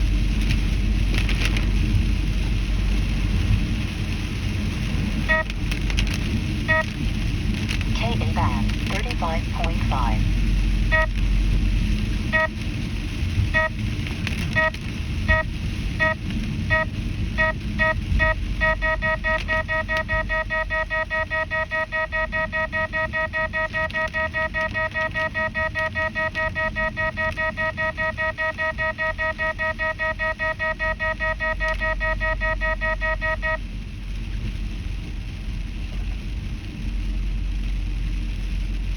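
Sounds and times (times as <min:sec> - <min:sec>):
car road noise: 0:00.0 - 0:17.8
radar detector beeps: 0:05.3 - 0:05.5, 0:06.7 - 0:06.9, 0:10.9 - 0:11.2, 0:12.3 - 0:12.6, 0:13.5 - 0:13.8, 0:14.6 - 0:33.6.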